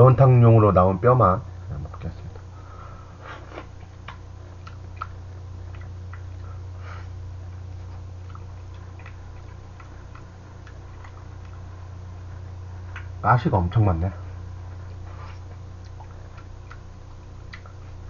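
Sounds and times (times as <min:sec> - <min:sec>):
steady low hum: 0:00.0 - 0:18.0
man chewing bony fish: 0:03.4 - 0:13.2, 0:14.6 - 0:18.0.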